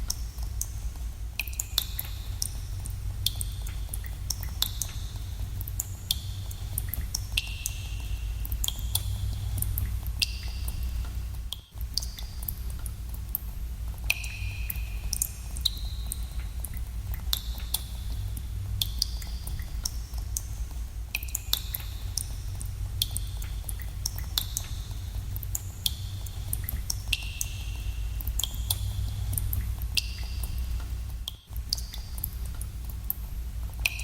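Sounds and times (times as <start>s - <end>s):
steady low rumble: 0.0s - 34.0s
water drops plinking: 14.1s - 16.2s.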